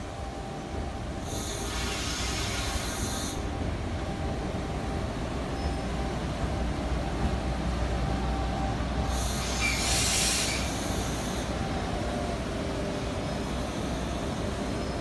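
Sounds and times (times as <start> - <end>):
electric train rumbling: 0.0 - 15.0
high-pitched hiss: 1.2 - 3.4, 9.1 - 11.5.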